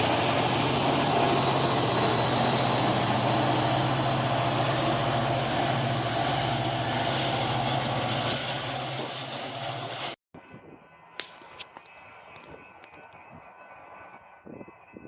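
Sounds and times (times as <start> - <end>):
train passing with rumble: 0.0 - 15.0.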